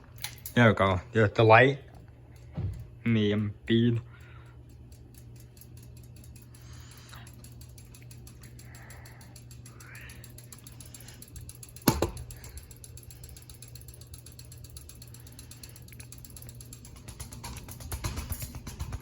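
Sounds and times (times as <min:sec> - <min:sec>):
ceiling fan motor hum: 0:00.0 - 0:19.0
fan mechanical clicking: 0:00.0 - 0:19.0
fan rattling: 0:00.0 - 0:19.0.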